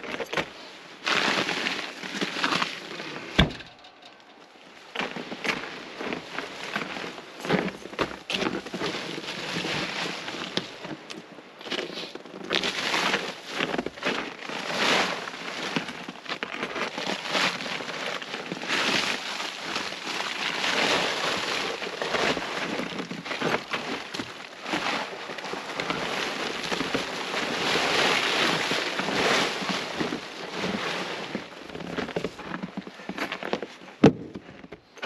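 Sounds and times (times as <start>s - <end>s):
rustling scraping noise: 0.0s - 35.0s
logs knocking together: 3.2s - 5.6s, 31.7s - 34.9s.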